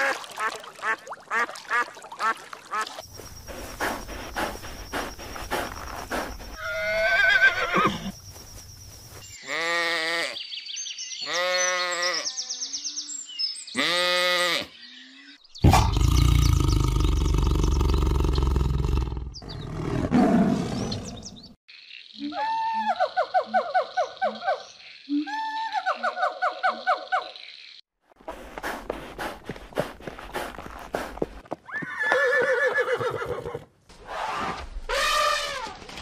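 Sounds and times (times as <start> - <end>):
horse whinnying: 6.6 - 8.1, 31.6 - 33.7
animal bleats: 9.4 - 10.4, 11.2 - 12.5, 13.8 - 14.7
tiger roar: 15.6 - 21.2.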